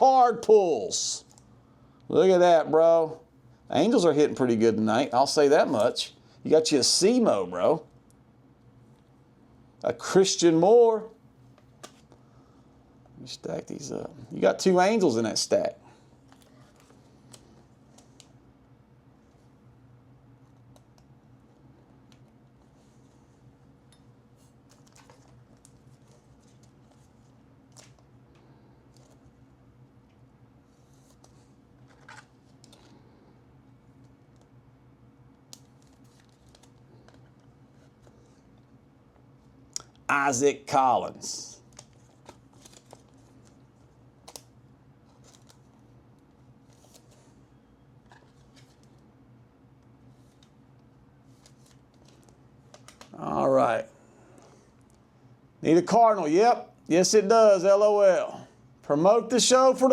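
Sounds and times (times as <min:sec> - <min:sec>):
steady low hum: 0:00.0 - 0:59.9
trading cards being handled: 0:11.5 - 0:12.2, 0:20.4 - 0:29.5, 0:30.6 - 0:33.2, 0:35.4 - 0:38.6, 0:41.1 - 0:49.1, 0:51.2 - 0:53.4
soft brushing of cards: 0:22.5 - 0:23.6, 0:24.3 - 0:29.4, 0:30.6 - 0:33.4, 0:45.0 - 0:47.5.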